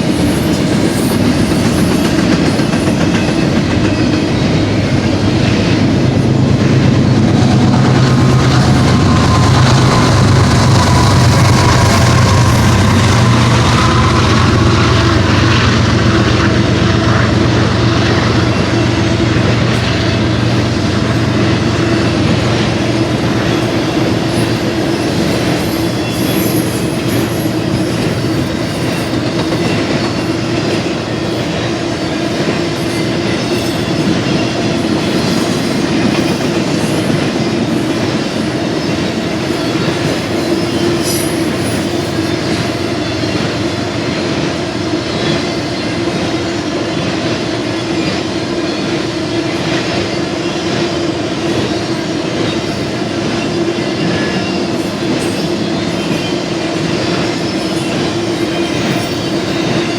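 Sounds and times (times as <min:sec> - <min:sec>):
wheels ringing tone: 0:00.0 - 0:44.6, 0:48.8 - 0:59.9
train wheels rumbling on rail: 0:00.0 - 0:59.9
low drone: 0:04.2 - 0:24.9.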